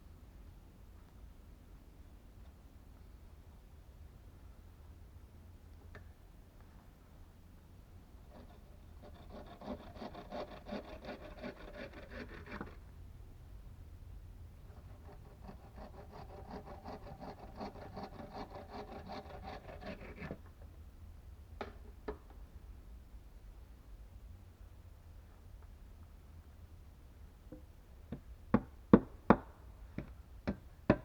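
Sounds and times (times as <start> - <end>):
hand tool rasping wood: 8.3 - 12.8, 14.9 - 20.4.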